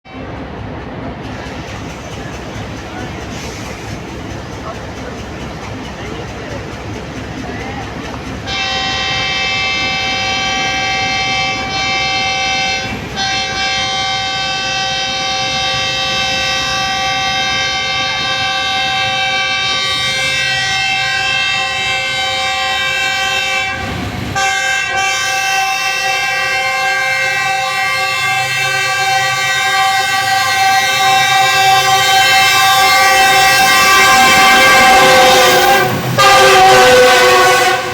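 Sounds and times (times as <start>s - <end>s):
locomotive air horn blasts: 8.5s - 37.9s.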